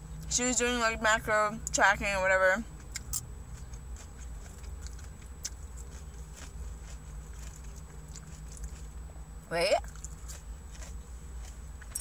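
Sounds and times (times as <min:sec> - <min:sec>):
steady low hum: 0:00.0 - 0:12.0
person chewing food: 0:02.8 - 0:09.2, 0:09.8 - 0:12.0.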